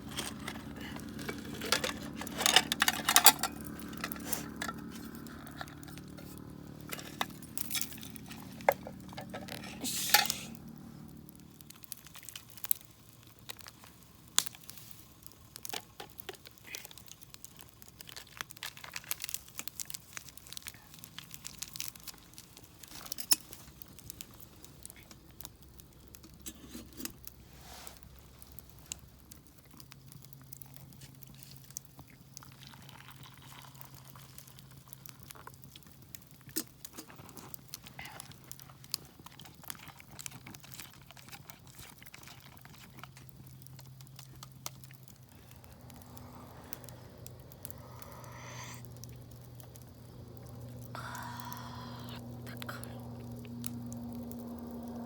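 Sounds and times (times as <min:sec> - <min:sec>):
wrapper crinkling and tearing: 0:00.0 - 0:27.2, 0:32.6 - 0:47.0
faint low hum: 0:40.9 - 0:55.0.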